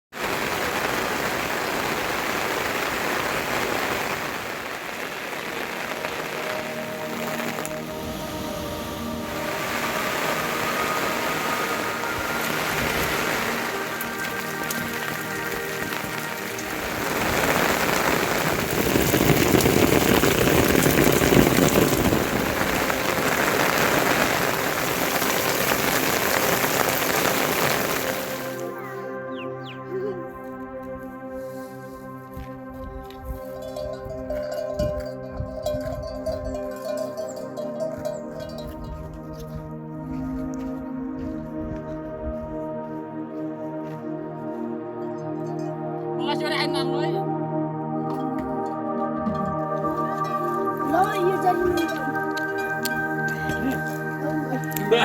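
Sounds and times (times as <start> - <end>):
steady rain falling: 0.0 - 28.8, 48.1 - 55.0.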